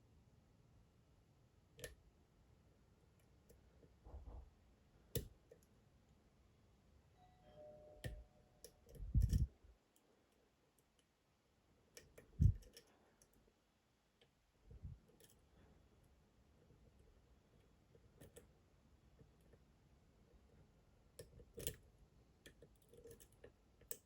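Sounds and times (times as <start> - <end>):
lock picks clicking in lock: 21.2 - 21.8, 22.4 - 24.0.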